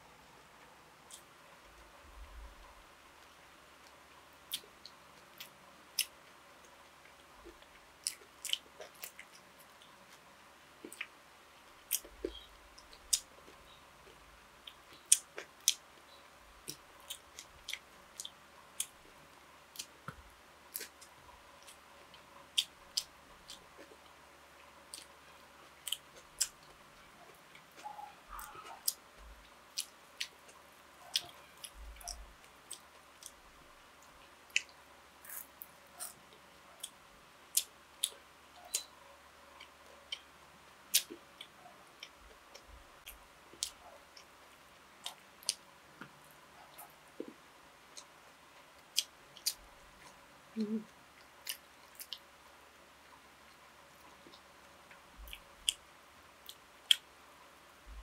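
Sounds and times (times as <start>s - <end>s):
person chewing with mouth open: 7.4s - 10.2s, 14.6s - 19.0s, 25.8s - 29.0s, 29.7s - 33.4s, 34.5s - 36.2s, 48.8s - 52.2s, 55.2s - 55.8s.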